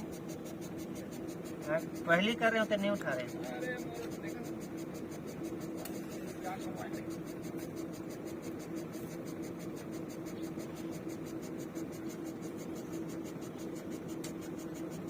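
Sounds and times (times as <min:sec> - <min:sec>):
drilling rig machinery humming: 0:00.0 - 0:15.0.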